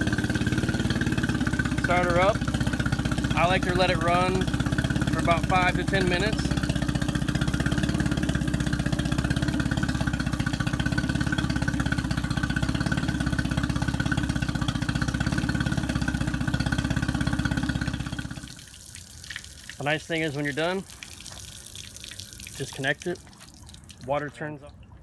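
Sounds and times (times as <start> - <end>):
outboard motor idling: 0.0 - 18.8.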